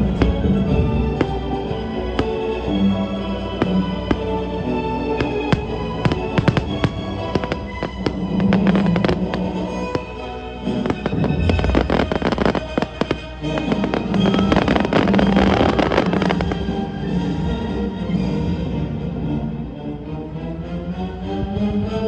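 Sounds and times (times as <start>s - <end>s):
fireworks crackling: 0.0s - 16.8s
music with long held notes: 0.0s - 22.0s.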